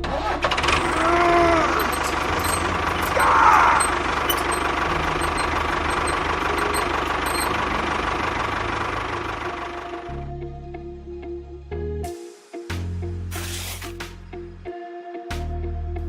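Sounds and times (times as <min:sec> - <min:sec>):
small engine knocking rumble: 0:00.5 - 0:10.1.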